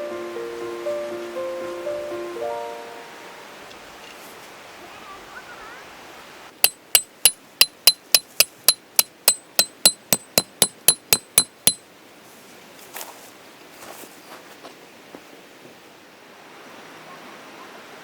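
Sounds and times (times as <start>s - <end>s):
hammer striking metal: 6.6s - 11.8s.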